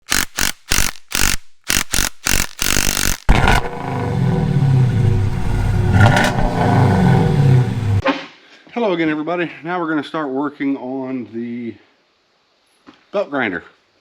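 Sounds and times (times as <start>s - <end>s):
motor humming: 3.3s - 8.0s.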